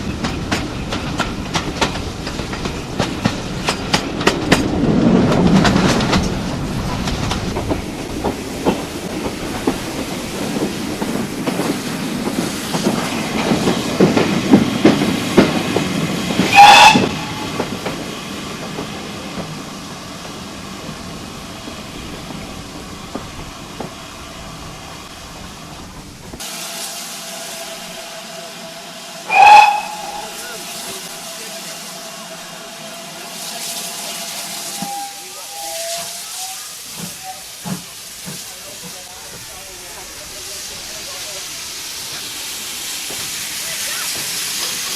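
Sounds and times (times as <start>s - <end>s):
train wheels rumbling on rails: 0.0s - 44.9s
locomotive whistle blast: 16.5s - 17.6s, 29.3s - 30.6s, 34.6s - 37.4s
steady hiss: 17.2s - 44.9s.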